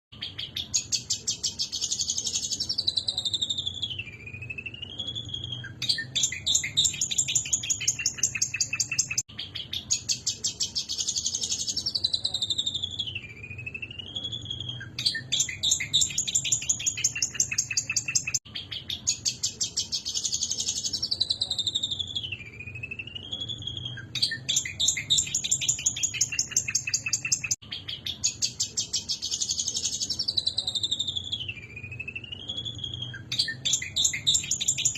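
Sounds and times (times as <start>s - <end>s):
bird whistled phrase: 2.5s - 9.9s, 20.9s - 28.3s, 30.0s - 34.9s.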